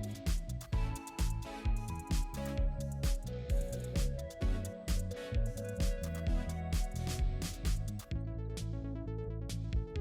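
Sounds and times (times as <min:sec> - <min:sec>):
drum beat: 0:00.0 - 0:08.1
sustained bass line: 0:00.0 - 0:10.0.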